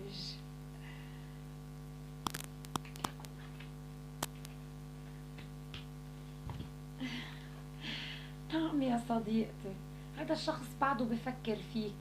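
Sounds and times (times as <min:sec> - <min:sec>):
electrical hum: 0:00.0 - 0:12.0
sharp clicks and taps: 0:02.2 - 0:03.4, 0:04.2 - 0:04.6.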